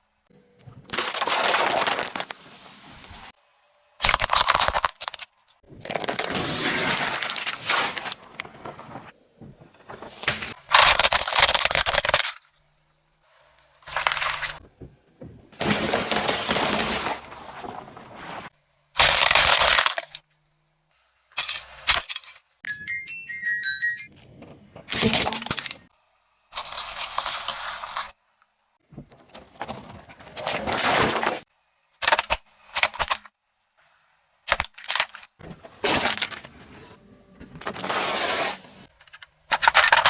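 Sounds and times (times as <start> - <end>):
objects crunching under car tyre: 0.6 - 3.4, 4.0 - 12.4, 13.8 - 20.2.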